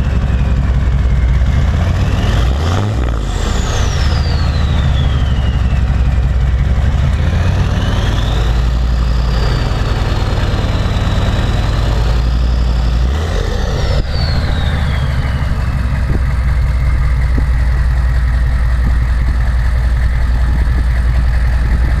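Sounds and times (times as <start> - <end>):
diesel engine rumble: 0.0 - 22.0
turbo whistling: 3.2 - 6.2, 7.3 - 9.4, 12.6 - 19.2.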